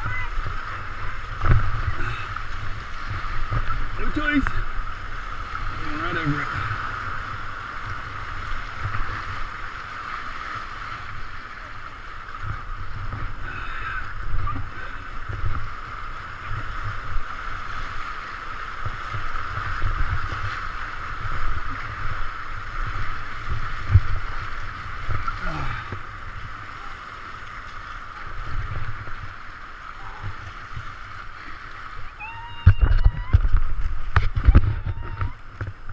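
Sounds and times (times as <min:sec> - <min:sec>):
river water rushing: 0:00.0 - 0:35.9
thumps on microphone: 0:32.6 - 0:35.9.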